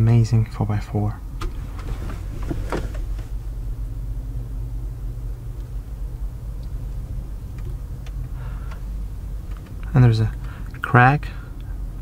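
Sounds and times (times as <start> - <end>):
vehicle engine idling: 1.0 - 12.0.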